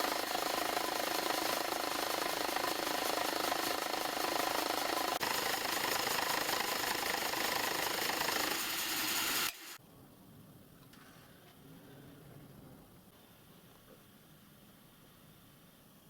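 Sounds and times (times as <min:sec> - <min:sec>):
metalworking machine running: 0:00.0 - 0:09.8
faint background noise: 0:09.8 - 0:16.0.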